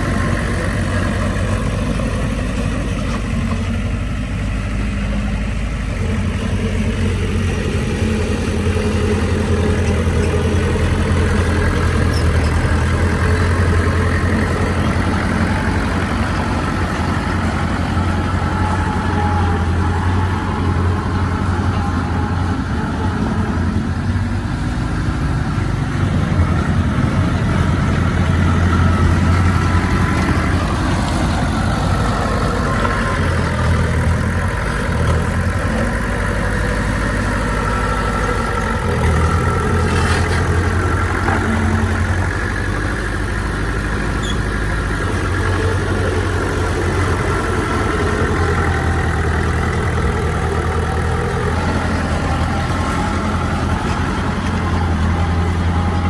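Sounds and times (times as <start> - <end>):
heavy diesel engine revving: 0.0 - 56.0.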